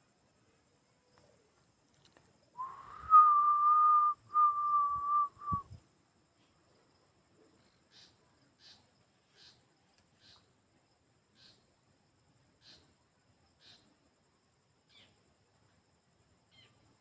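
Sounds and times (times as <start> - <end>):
high thin whistle-like tone: 2.6 - 5.8.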